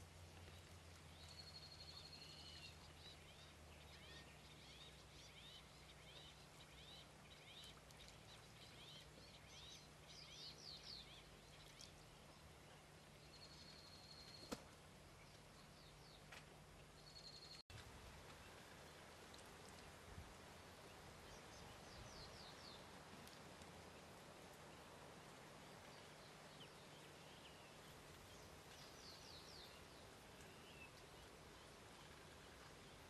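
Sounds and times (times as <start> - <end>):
birds chirping and twittering: 0.3 - 17.6, 20.8 - 24.1, 25.6 - 33.0.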